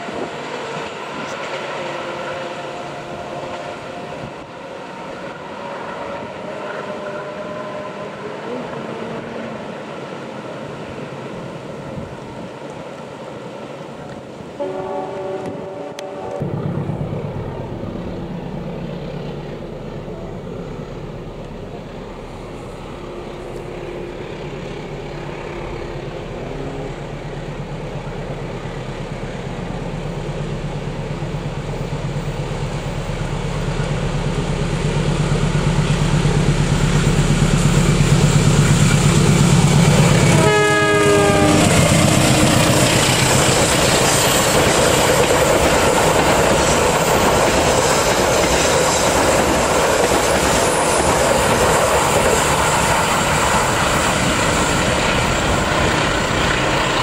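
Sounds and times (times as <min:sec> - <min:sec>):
locomotive engine drone: 0:00.0 - 0:57.0
wheels clacking on rail: 0:00.0 - 0:57.0
train horn: 0:01.2 - 0:09.7, 0:14.6 - 0:16.5, 0:39.7 - 0:43.8.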